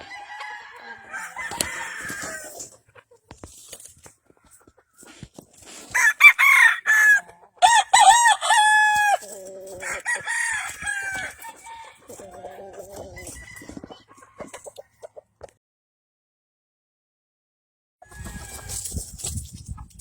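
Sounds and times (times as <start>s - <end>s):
roosters crowing: 0.0s - 2.7s, 5.9s - 14.7s, 18.0s - 19.0s.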